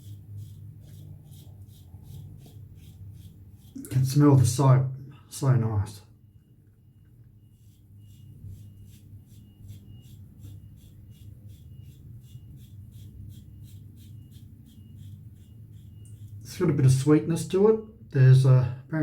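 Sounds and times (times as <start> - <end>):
shaving brush lathering soap: 0.0 - 4.6, 7.5 - 16.5.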